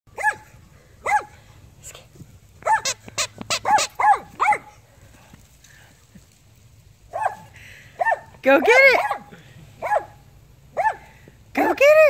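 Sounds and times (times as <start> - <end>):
dog barking: 0.1 - 1.4, 2.6 - 4.8, 7.1 - 8.3, 9.0 - 10.2, 10.8 - 11.0.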